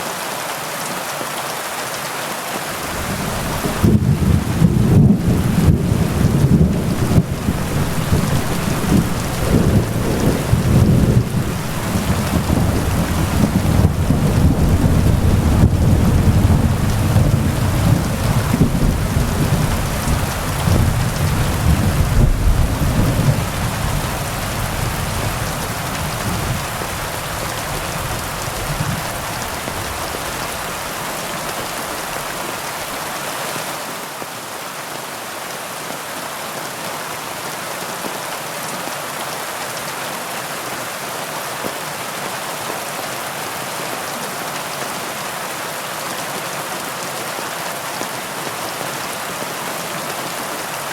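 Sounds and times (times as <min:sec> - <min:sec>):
heavy rain on leaves: 0:00.0 - 0:50.9
thunder rumbling: 0:02.8 - 0:30.8.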